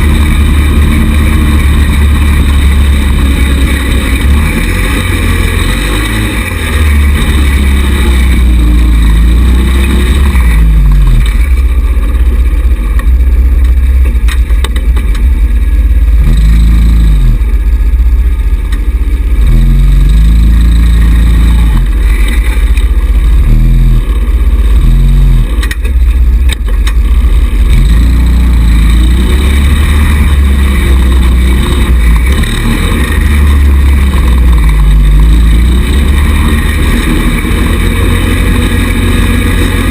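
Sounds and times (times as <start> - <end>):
small buggy engine revving: 0.0 - 39.9.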